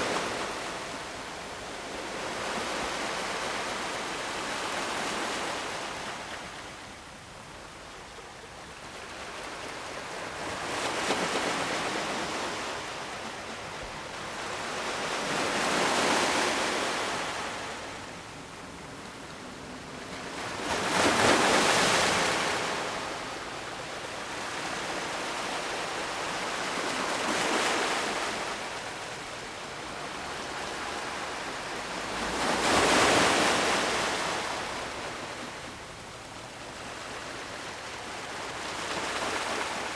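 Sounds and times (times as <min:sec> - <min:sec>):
ocean waves breaking on shore: 0:08.8 - 0:39.9.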